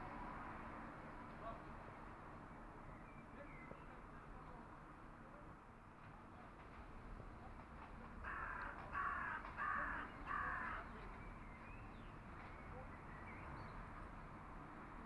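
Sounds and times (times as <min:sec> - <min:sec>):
crow cawing: 0:08.2 - 0:10.9.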